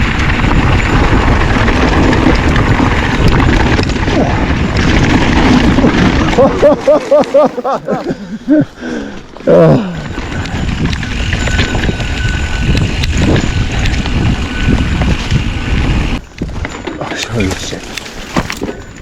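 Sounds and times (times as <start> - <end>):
wind rushing over microphone: 0.0 - 7.0, 9.8 - 16.8.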